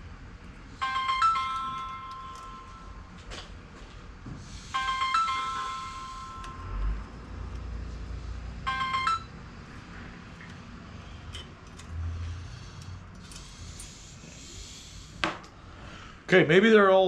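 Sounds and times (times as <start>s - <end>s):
phone ringtone electronic tone: 0.8s - 3.2s, 4.7s - 7.0s, 8.6s - 9.4s.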